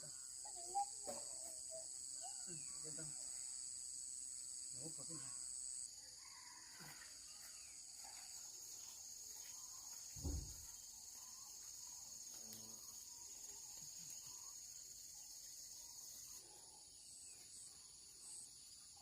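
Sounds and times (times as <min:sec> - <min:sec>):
insects droning: 0:00.0 - 0:19.0
dull thump: 0:10.2 - 0:10.7.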